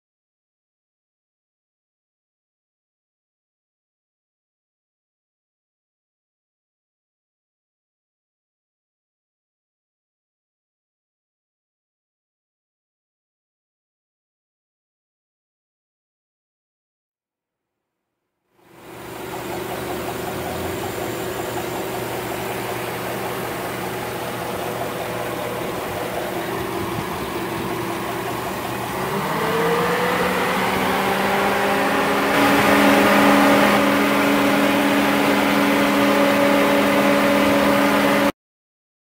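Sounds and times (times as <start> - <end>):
car engine idling and revving: 18.6 - 38.3.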